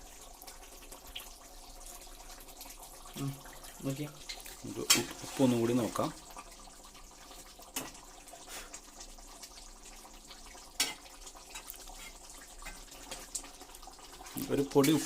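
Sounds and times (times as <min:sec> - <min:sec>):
curry simmering in a pot: 0:00.0 - 0:15.0.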